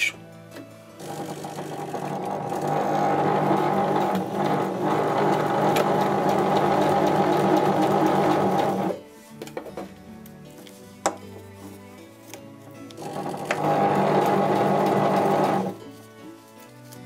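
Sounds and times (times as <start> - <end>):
electric sewing machine sewing: 1.0 - 9.0, 13.0 - 15.8.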